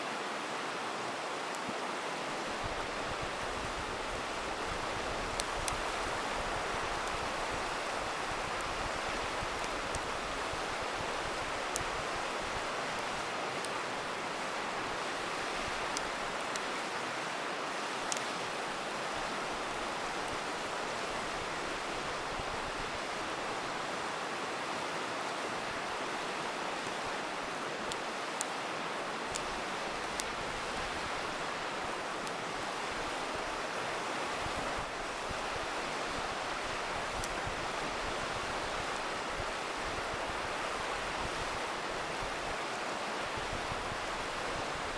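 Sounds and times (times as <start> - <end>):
river water rushing: 0.0 - 44.9
campfire popping and crackling: 2.3 - 24.0, 24.8 - 33.8, 34.4 - 44.9.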